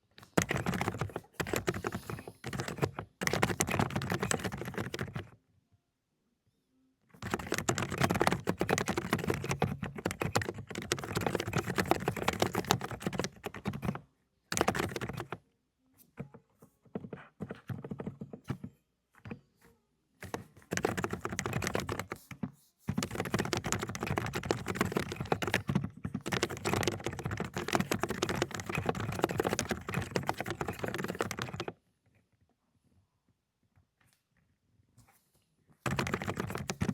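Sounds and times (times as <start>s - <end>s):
fast typing on mechanical keyboard: 0.2s - 5.4s, 7.2s - 15.4s, 17.0s - 18.7s, 20.2s - 22.3s, 22.9s - 31.8s, 35.8s - 36.9s.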